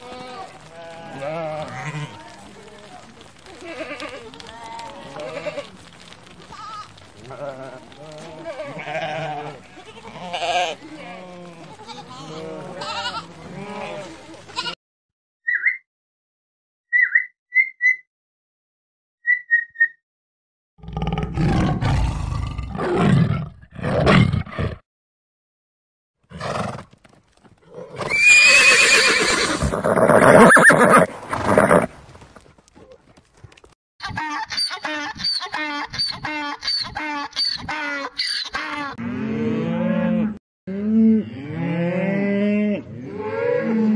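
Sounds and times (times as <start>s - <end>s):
sheep bleating: 0.0s - 2.4s, 3.6s - 5.9s, 6.5s - 14.8s
horse whinnying: 26.3s - 26.9s, 27.7s - 31.9s.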